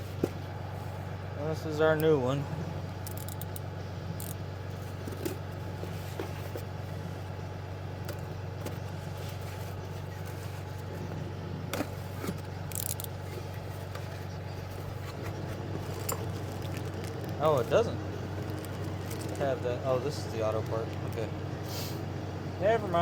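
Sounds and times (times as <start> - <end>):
idling engine hum: 0.0 - 23.0
metallic clicks of tools: 3.0 - 3.6, 12.7 - 13.2.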